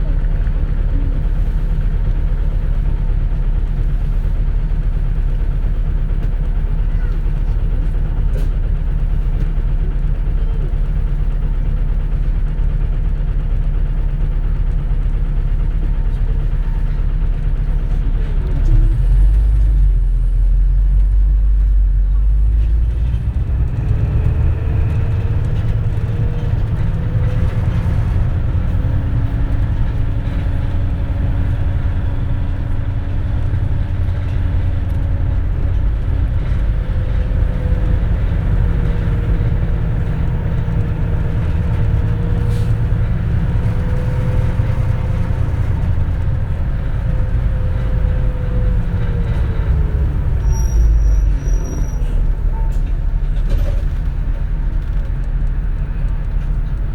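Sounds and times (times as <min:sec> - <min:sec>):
bus engine and road rumble: 0:00.0 - 0:56.9
drivetrain whine: 0:18.4 - 0:56.9.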